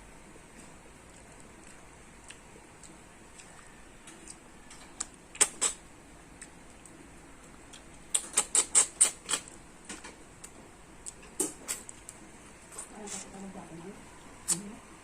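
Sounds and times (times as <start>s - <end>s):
wet mouth smacks and chewing: 0.6s - 5.8s, 7.7s - 12.9s.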